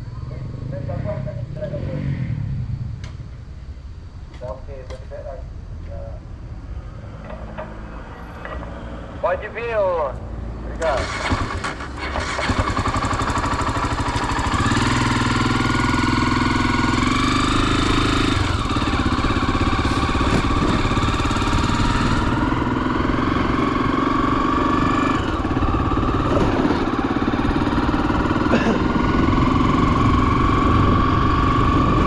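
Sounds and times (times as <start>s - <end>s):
motorcycle engine running: 10.8s - 32.0s.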